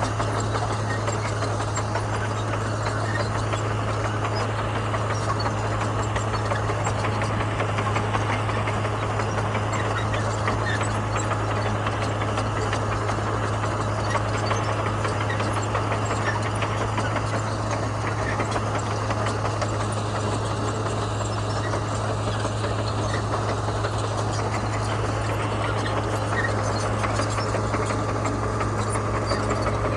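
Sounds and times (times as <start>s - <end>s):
bulldozer diesel engine droning: 0.0s - 29.9s.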